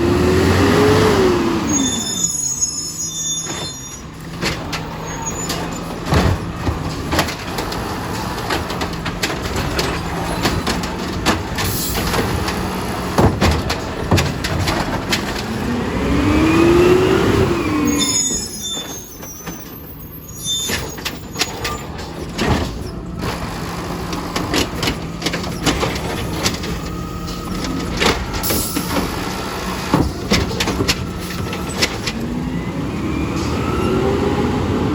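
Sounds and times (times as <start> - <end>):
garbage truck running: 0.0 - 34.9
clunks and knocks: 3.4 - 16.9, 20.6 - 32.4.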